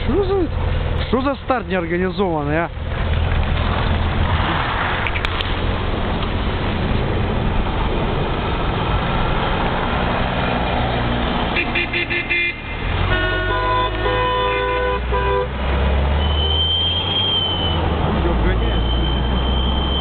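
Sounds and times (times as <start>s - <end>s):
car engines and road noise: 0.0s - 20.0s
car horn honking: 11.5s - 15.6s.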